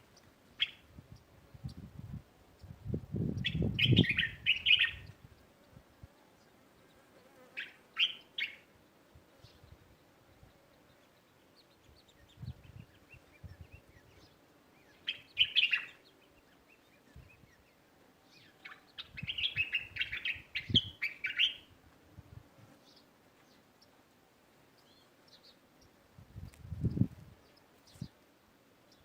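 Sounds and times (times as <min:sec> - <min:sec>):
small songbirds chirping: 0:00.0 - 0:29.0.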